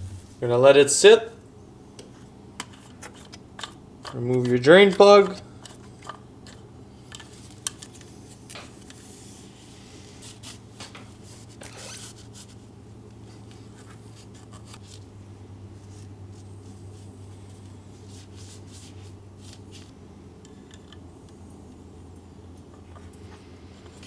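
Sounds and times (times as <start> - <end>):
steady low hum: 0.0 - 2.5.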